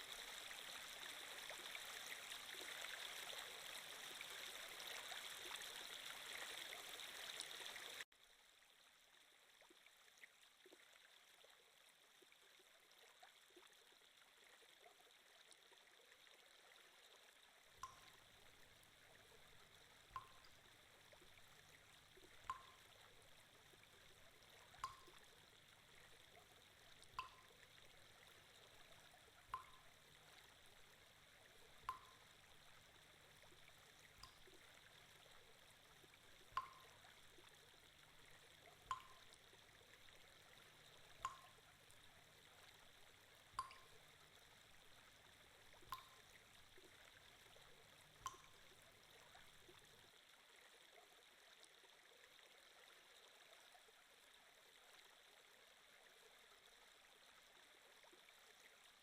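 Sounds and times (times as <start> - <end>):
soft water trickle: 0.0 - 59.0
water drip plinking: 17.6 - 50.0.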